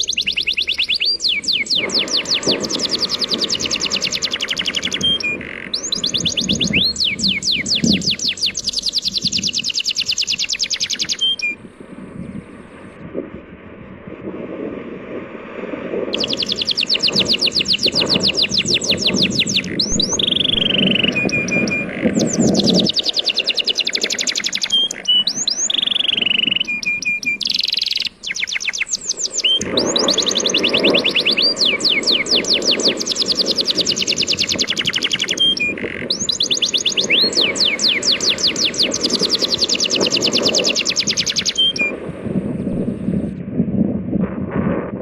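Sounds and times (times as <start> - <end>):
bird chirping in fast trills: 0.0 - 11.6, 16.1 - 42.0
sea waves breaking: 0.2 - 43.4.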